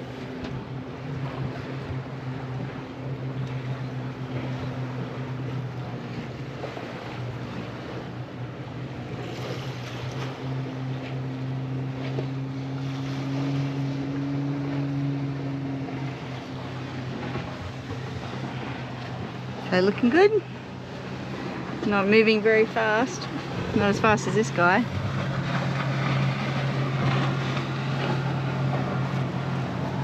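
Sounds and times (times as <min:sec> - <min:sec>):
motorboat engine droning: 0:00.0 - 0:30.0
water noise: 0:00.0 - 0:30.0
wind: 0:00.0 - 0:30.0.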